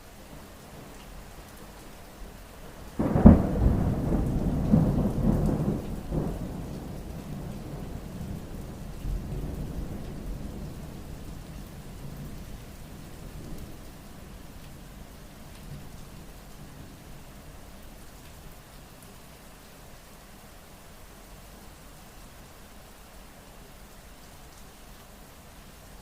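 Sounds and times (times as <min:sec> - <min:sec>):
steady rain: 0:00.0 - 0:26.0
thunder crack and rumble: 0:03.0 - 0:13.8.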